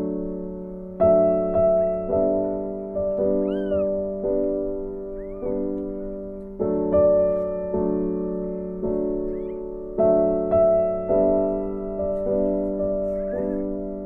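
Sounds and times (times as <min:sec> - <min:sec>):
piano chords: 0:00.0 - 0:14.0
kitten meowing: 0:03.4 - 0:04.0, 0:05.1 - 0:05.7, 0:09.3 - 0:09.6.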